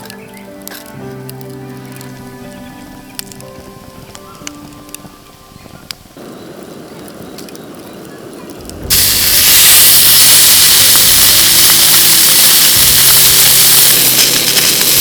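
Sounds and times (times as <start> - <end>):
steak sizzling in a pan: 5.6 - 15.0.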